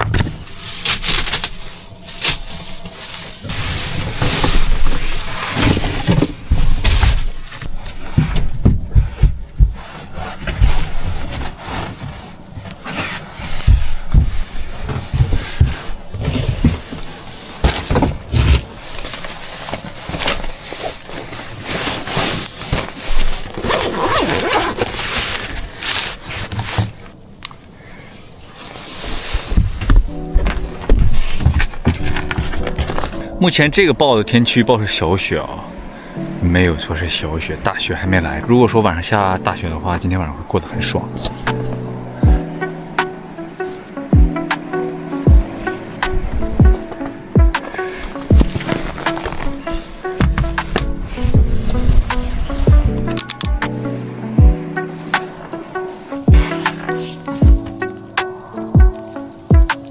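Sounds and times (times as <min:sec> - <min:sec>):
plastic bags tearing and rustling: 0:00.0 - 0:08.2, 0:09.9 - 0:27.7, 0:46.4 - 0:53.5, 0:54.7 - 0:59.9
scraping: 0:00.0 - 0:27.2, 0:40.7 - 0:59.9
low thumps: 0:41.5 - 0:43.2, 0:44.1 - 0:47.6, 0:48.3 - 0:48.9, 0:50.1 - 0:54.8.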